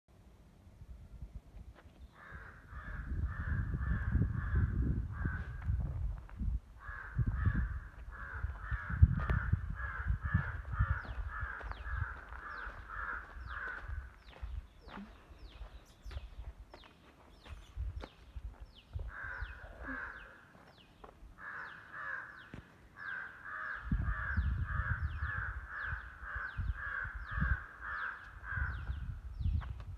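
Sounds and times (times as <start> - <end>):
low gusty rumble: 0.6 - 16.7, 23.8 - 27.8, 28.4 - 29.9.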